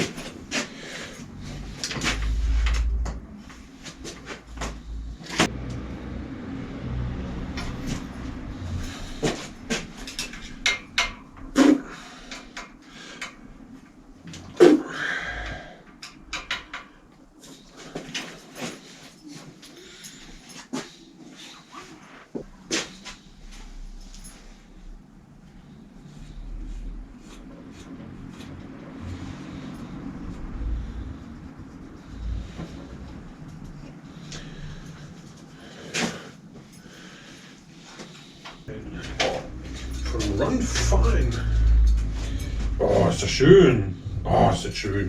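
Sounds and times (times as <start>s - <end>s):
low rumble: 0.0s - 12.8s, 23.2s - 35.6s, 38.7s - 45.0s
objects knocking and clicking: 16.0s - 17.0s.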